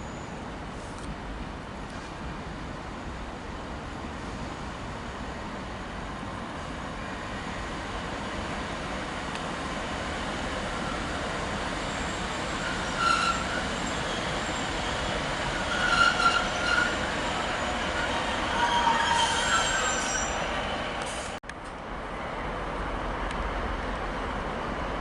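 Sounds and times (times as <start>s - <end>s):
train wheels squealing on rails: 0.0s - 1.0s, 10.7s - 21.4s
passenger train running: 0.0s - 25.0s.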